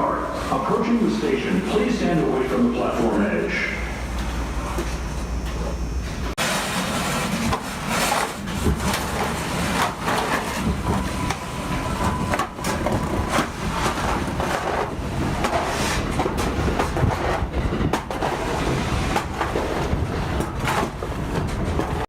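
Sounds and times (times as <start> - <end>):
subway train rumbling: 0.0 - 22.0
wheels clacking over rail joints: 6.4 - 22.0.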